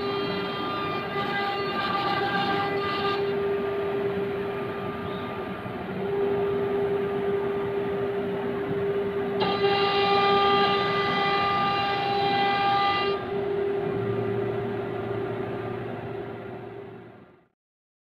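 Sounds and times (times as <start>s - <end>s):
wood cutting noise: 0.0s - 4.4s, 9.3s - 14.0s
cnc router whining: 0.0s - 17.4s.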